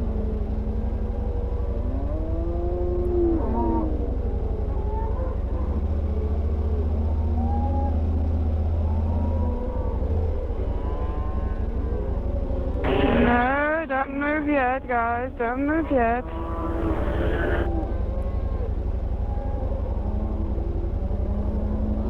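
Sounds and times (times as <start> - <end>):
motorcycle engine at low revs: 0.0 - 13.5, 16.0 - 22.0
cattle lowing: 9.9 - 13.6, 15.4 - 18.7.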